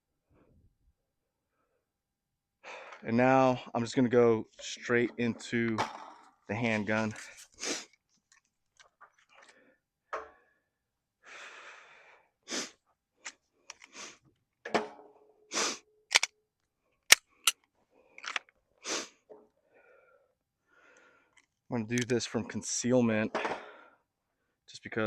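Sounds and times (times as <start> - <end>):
gear clicks clacks and rustles: 18.2 - 18.6.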